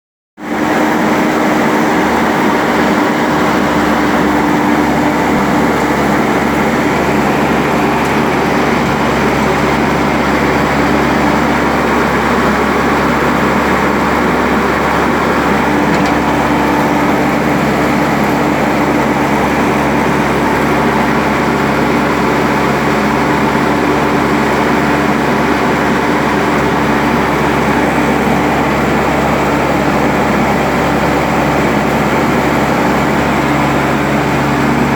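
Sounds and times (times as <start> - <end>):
concrete mixer engine running: 0.4 - 34.9.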